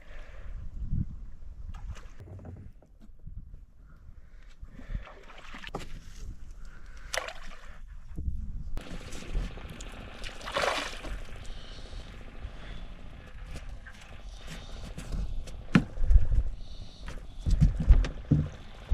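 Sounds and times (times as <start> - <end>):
boat engine rumble: 8.8 - 18.9
water sloshing: 8.9 - 12.0.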